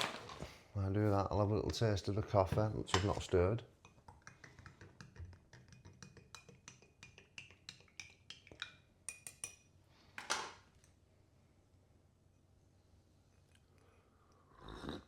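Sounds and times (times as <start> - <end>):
spoon clinking in cup: 5.7 - 9.7.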